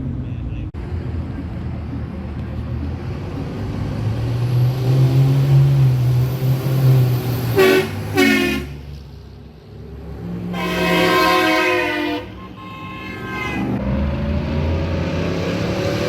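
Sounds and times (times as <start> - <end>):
vehicle engine droning: 0.0 - 16.0
vehicle horn honking: 7.6 - 8.8, 10.5 - 13.8.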